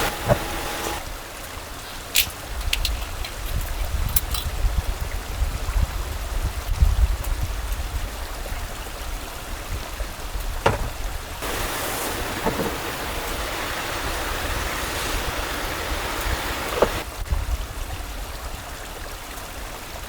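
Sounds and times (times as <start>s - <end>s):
stream water rushing: 0.0s - 2.6s, 7.9s - 17.2s.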